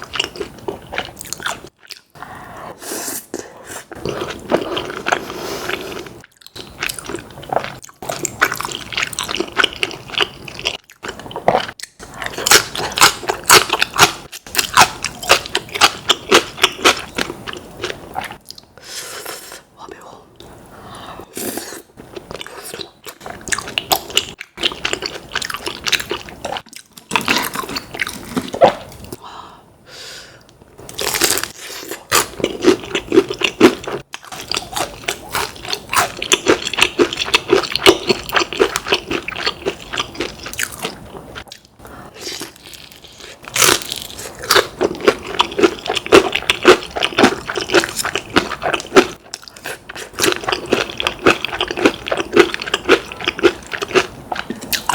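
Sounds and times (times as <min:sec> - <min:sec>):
crunching and chewing fried chicken: 0:04.0 - 0:18.4, 0:30.9 - 0:54.9.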